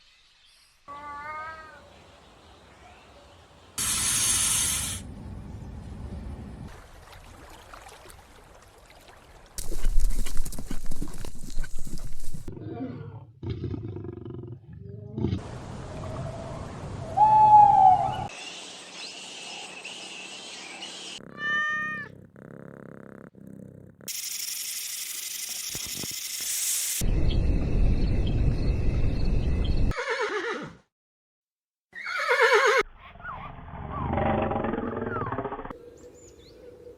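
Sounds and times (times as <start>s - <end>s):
animal calls: 32.0s - 36.0s.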